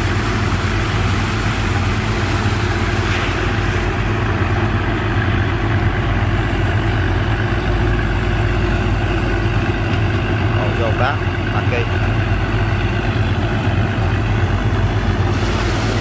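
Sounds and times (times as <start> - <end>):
rushing hiss: 0.0 - 4.0, 15.1 - 16.0
pump engine droning: 0.0 - 16.0.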